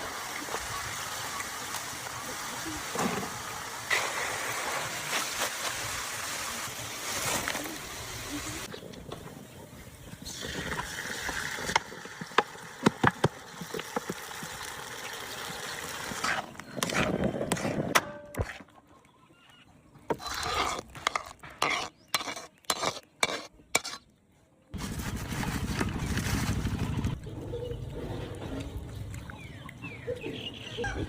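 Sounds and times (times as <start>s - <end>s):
cooking hiss: 0.0s - 8.7s.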